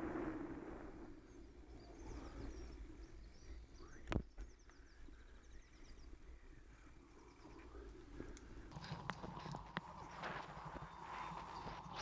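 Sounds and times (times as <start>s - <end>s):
faint birdsong chirps: 0.0s - 12.0s.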